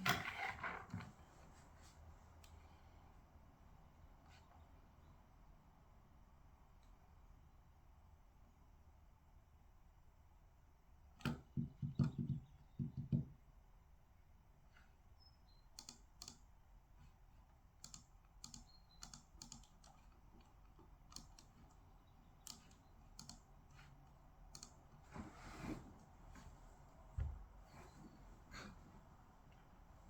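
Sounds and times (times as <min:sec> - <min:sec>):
computer keyboard key clicks: 0:15.8 - 0:16.4, 0:17.8 - 0:20.0, 0:22.5 - 0:23.4.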